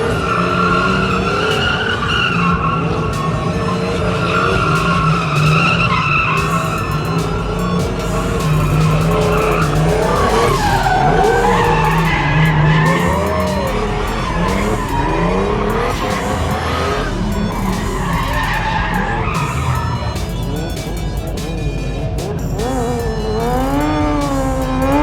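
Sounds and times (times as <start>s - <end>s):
car engine revving hard: 0.0s - 25.0s
tyres squealing: 0.0s - 25.0s.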